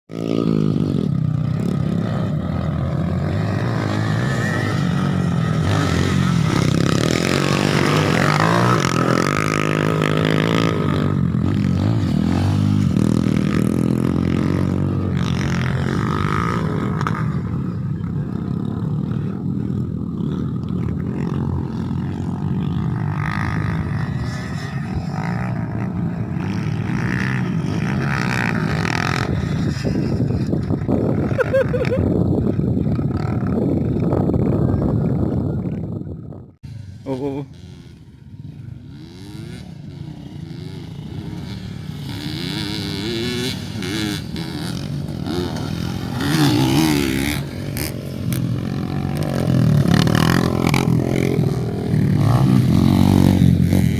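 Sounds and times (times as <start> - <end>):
dirt bike engines revving: 0.1 - 53.9.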